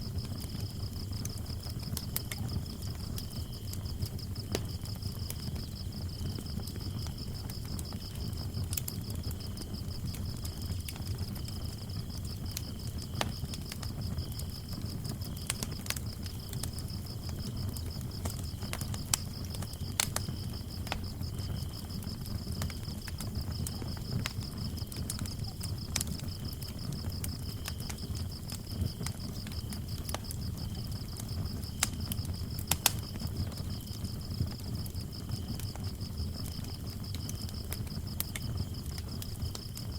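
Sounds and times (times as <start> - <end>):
lower cricket chirping: 0.0 - 39.9
wood fire crackling: 0.0 - 39.9.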